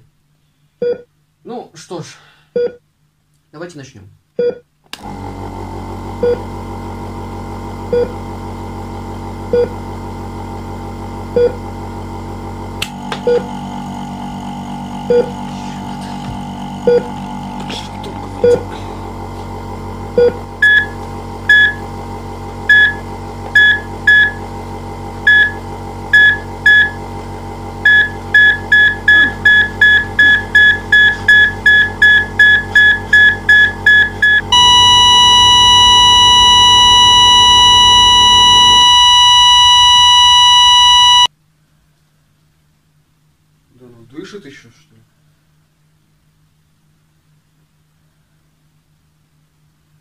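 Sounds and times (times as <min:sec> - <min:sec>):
heart monitor beeps: 0:00.8 - 0:01.1, 0:02.6 - 0:02.8, 0:15.1 - 0:15.4, 0:20.2 - 0:21.8, 0:22.7 - 0:23.0, 0:23.6 - 0:24.4, 0:25.3 - 0:25.6, 0:26.2 - 0:27.0, 0:27.9 - 0:41.3
low steady hum: 0:27.8 - 0:50.0
continuous flatline tone: 0:27.9 - 0:41.3.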